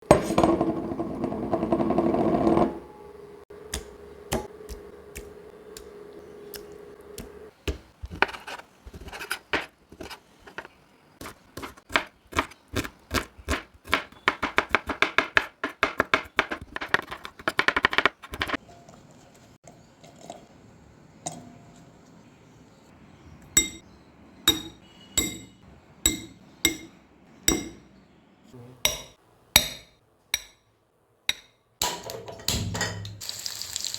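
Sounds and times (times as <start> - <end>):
knife chopping on a board: 7.6 - 9.7, 11.2 - 18.0.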